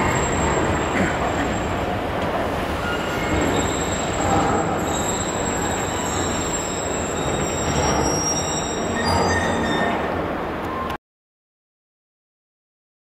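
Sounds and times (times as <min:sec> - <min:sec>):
wheel squeals: 0:00.0 - 0:02.0, 0:02.7 - 0:11.0
rail rumble: 0:00.0 - 0:10.9.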